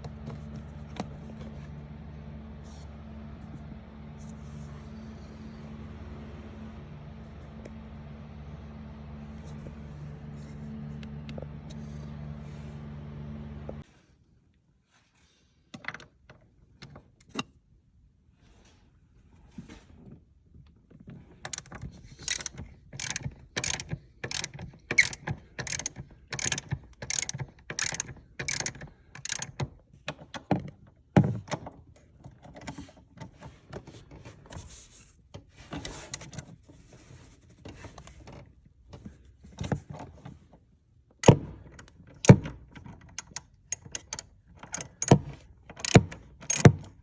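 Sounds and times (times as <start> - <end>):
ratchet wrench clicking: 21.5 - 29.5, 42.2 - 46.9.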